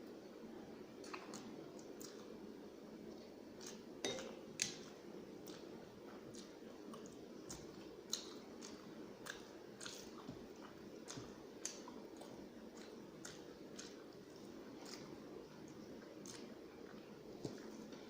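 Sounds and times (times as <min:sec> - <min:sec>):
person chewing food: 0:01.0 - 0:18.0
mouth clicks and smacks: 0:11.1 - 0:14.0.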